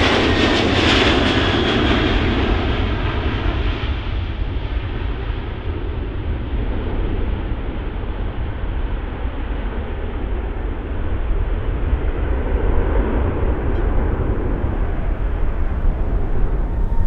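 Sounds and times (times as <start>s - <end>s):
jet engines rumbling: 10.2s - 17.0s.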